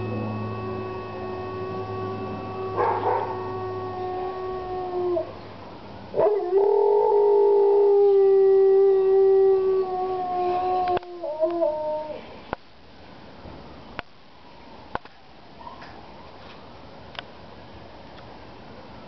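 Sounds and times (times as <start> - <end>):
dog howling: 0.0 - 5.4.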